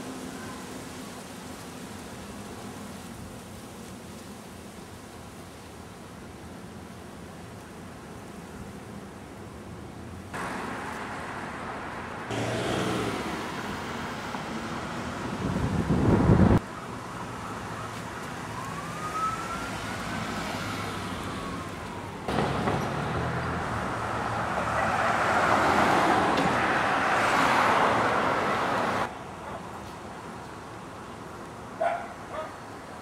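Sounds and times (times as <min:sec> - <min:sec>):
street traffic noise: 0:00.0 - 0:33.0
rushing noise: 0:10.4 - 0:16.6
distant siren wailing: 0:16.6 - 0:29.1.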